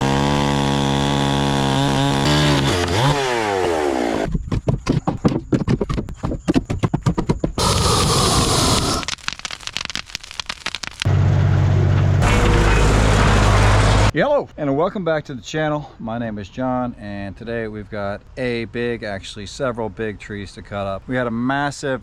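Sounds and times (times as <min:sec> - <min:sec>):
chainsaw running at high revs: 0:00.0 - 0:04.3
sharp cracks and snaps: 0:07.1 - 0:11.1.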